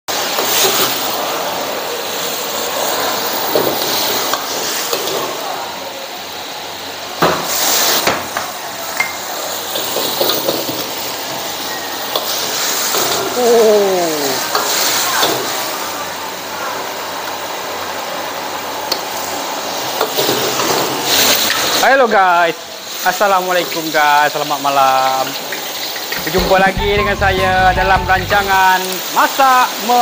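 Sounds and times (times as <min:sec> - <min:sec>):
food sizzling in a pan: 0:00.1 - 0:27.3, 0:28.2 - 0:30.0
short falling tone: 0:26.2 - 0:28.7.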